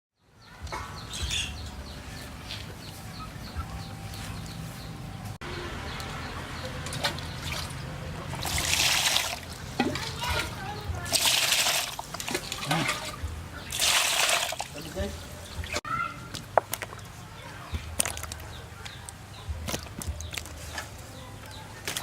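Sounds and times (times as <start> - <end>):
small birds chirping: 0.2 - 22.0
water splashing: 5.7 - 15.8.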